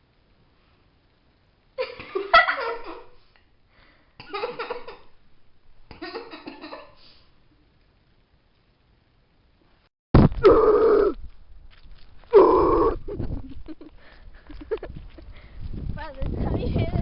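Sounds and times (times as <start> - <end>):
person laughing: 12.4 - 15.3.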